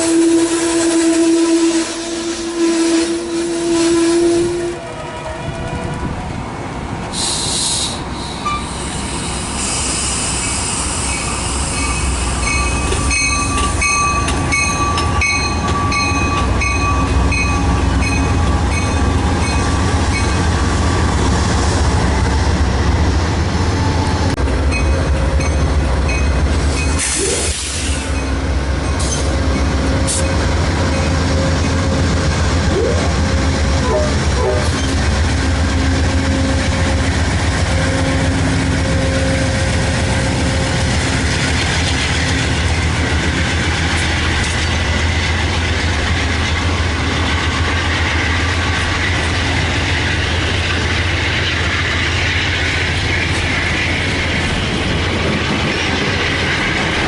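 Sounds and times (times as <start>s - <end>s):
high squeals of train: 0.0s - 57.0s
train rumbling past: 0.0s - 57.0s
metallic clicks on tracks: 10.2s - 20.6s, 24.0s - 35.4s, 39.4s - 57.0s.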